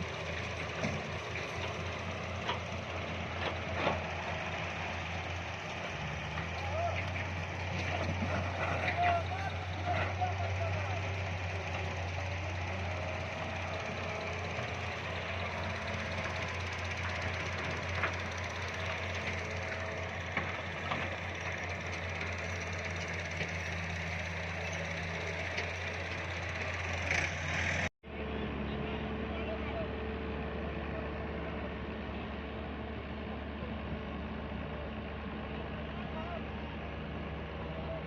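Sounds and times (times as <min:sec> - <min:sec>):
diesel engine droning: 0:00.0 - 0:38.0.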